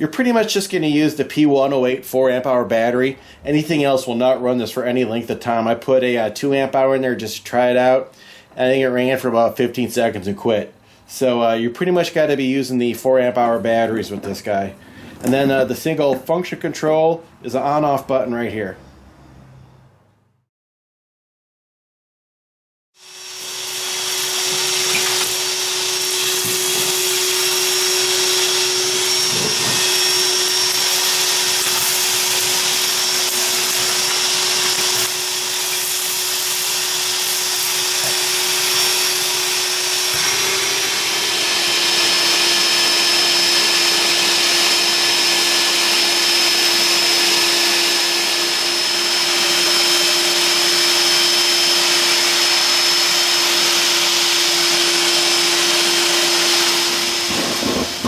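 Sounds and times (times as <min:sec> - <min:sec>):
vacuum motor humming: 0:23.0 - 0:58.0.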